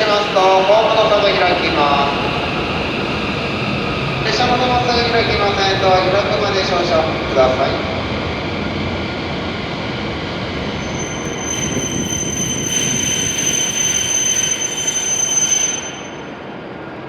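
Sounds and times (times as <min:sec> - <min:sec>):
train rumbling: 0:00.0 - 0:17.0
brakes squealing: 0:10.8 - 0:16.2.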